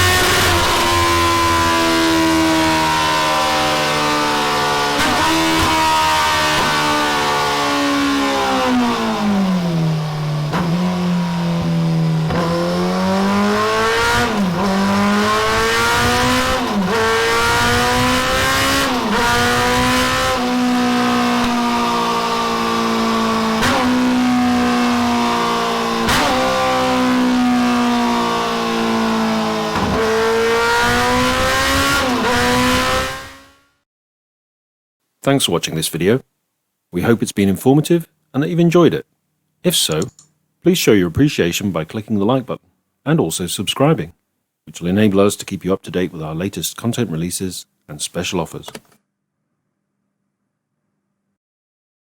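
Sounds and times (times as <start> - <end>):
motorcycle engine revving high: 0.0 - 33.7.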